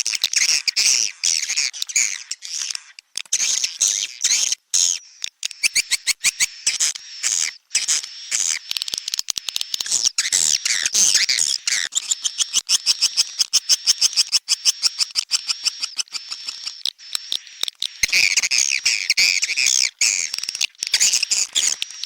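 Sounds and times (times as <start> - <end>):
swiftlet chirping twitters: 5.5 - 22.0
fast clicks: 7.8 - 10.0.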